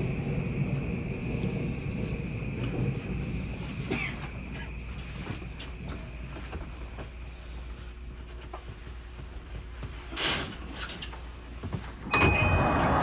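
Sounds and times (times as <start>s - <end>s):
high train whine: 0.0s - 8.0s, 12.0s - 13.0s
train rumbling: 0.0s - 13.0s.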